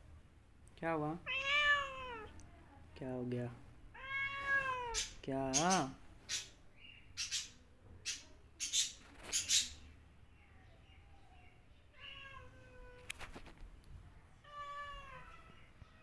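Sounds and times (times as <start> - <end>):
cat meowing: 1.2 - 2.3, 3.9 - 5.1, 11.9 - 13.2, 14.4 - 15.6.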